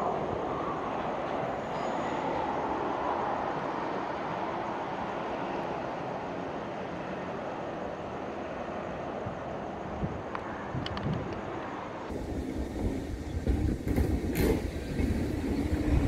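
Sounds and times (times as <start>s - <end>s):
train rolling along track: 0.0s - 16.0s.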